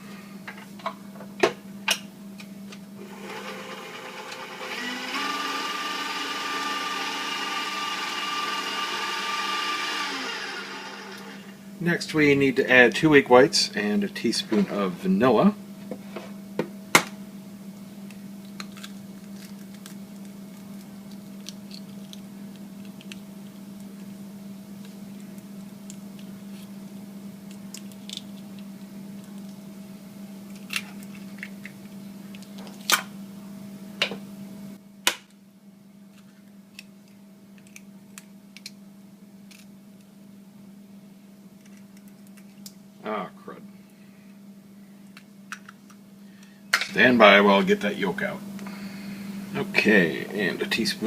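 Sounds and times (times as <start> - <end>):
stand mixer motor humming: 3.0 - 11.6.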